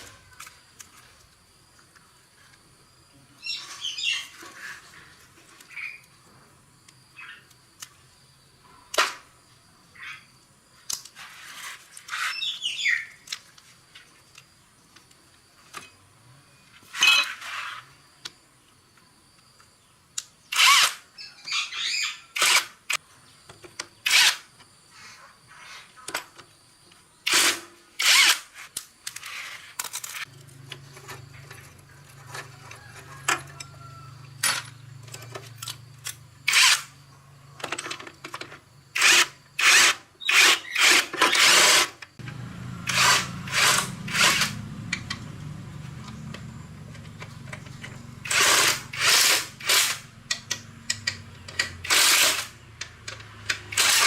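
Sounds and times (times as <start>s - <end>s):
metal tools clinking: 16.9s - 17.5s
metal scraping or rattling: 40.6s - 45.3s, 47.1s - 54.0s.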